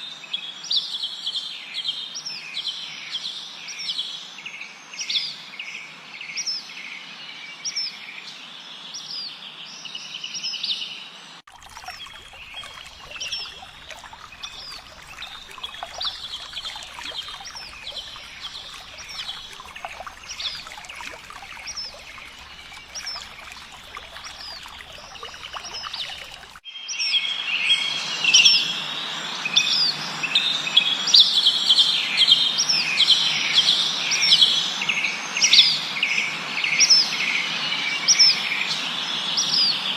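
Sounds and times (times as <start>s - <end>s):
songbirds chirping: 11.5s - 26.6s.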